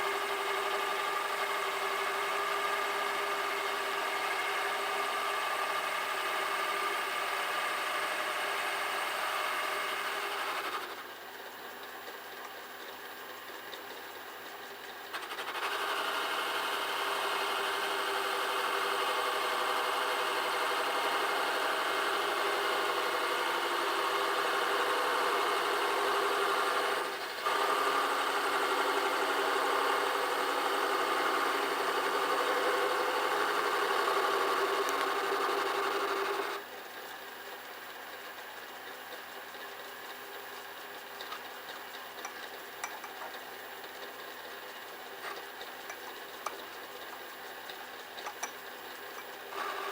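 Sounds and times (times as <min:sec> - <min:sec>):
metal lathe running: 0:15.2 - 0:36.6.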